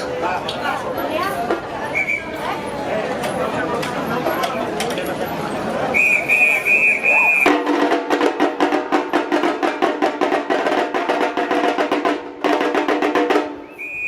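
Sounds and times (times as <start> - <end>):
whistle call: 1.9 - 2.4, 5.9 - 7.6, 13.6 - 14.0
samba drums and percussion: 6.3 - 14.0.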